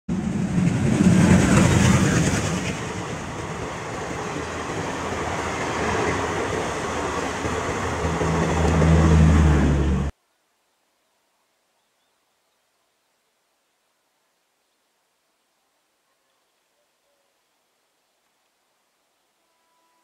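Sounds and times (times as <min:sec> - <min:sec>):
train wheels rushing past: 0:00.1 - 0:10.1.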